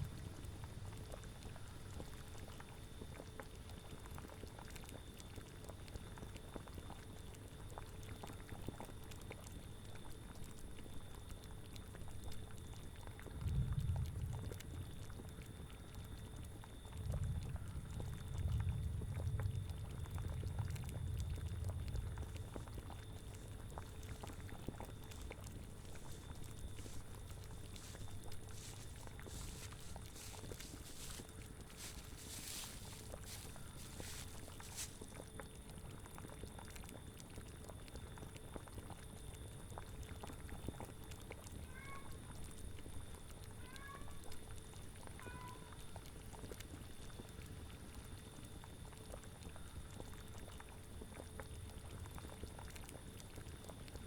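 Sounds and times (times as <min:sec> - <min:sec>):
low rumbling: 0:00.0 - 0:01.1
liquid bubbling at a boil: 0:00.0 - 0:54.0.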